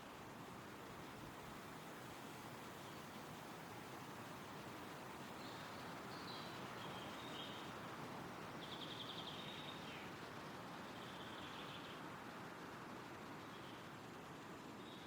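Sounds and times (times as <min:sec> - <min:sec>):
wind rustling through trees: 0:00.0 - 0:15.0
songbirds calling: 0:05.2 - 0:10.2, 0:10.8 - 0:12.0.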